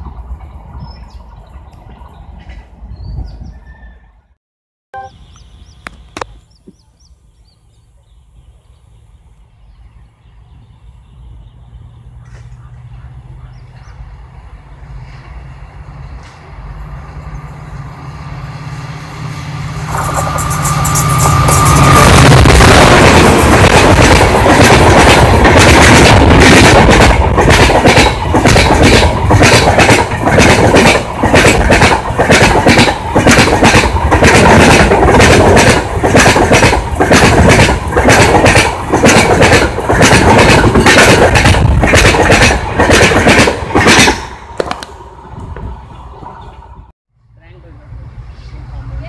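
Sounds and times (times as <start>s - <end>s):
train wheels clickety-clack on rails: 0.0s - 3.3s, 16.1s - 16.6s, 19.8s - 46.7s.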